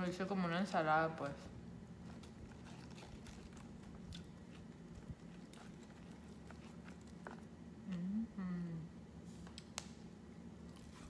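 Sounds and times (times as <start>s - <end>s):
faint steady hum: 0.0s - 11.0s
person quietly chewing: 2.0s - 8.7s.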